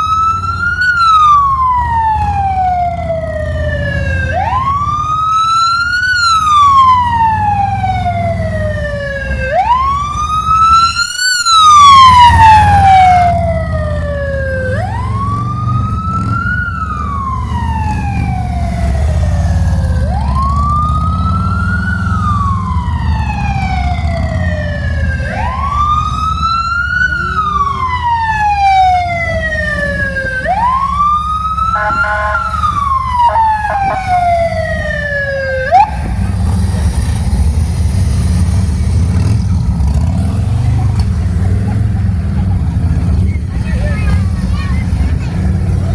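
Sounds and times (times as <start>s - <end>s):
motorcycle engine rumble: 0.0s - 45.9s
police siren wailing: 0.0s - 45.9s.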